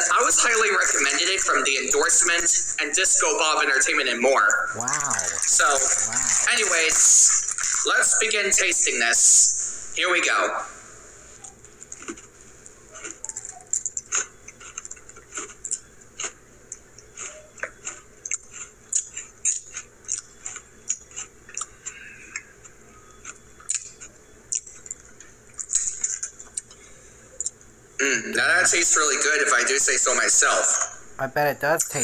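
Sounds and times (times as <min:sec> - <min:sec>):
person chewing crunchy cookies: 0:11.6 - 0:27.6.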